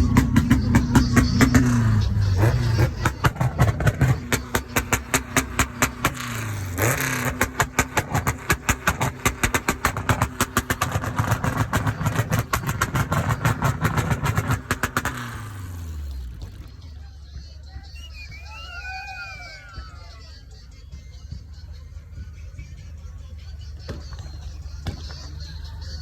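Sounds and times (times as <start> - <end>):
engine running with sharp pops: 0.0 - 16.9, 23.3 - 26.0.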